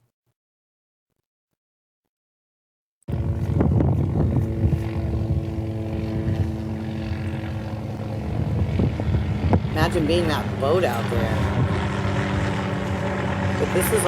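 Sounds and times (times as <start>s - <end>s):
engine droning hum: 3.1s - 14.0s.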